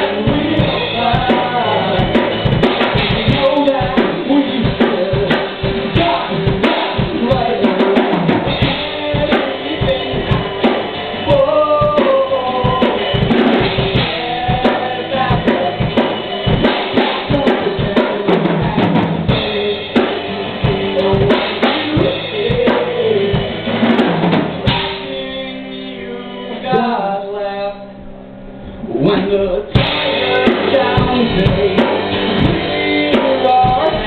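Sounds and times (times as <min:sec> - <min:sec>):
rock band playing live: 0:00.0 - 0:34.0
bass drum and snare hits: 0:29.8 - 0:34.0.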